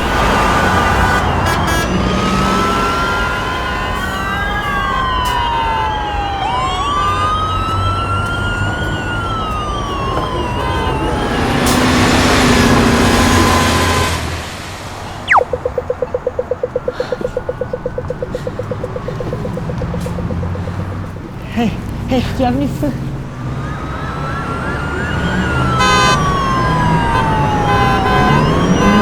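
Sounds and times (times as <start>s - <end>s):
busy city traffic: 0.0s - 29.0s
emergency vehicle sirens wailing: 0.0s - 29.0s.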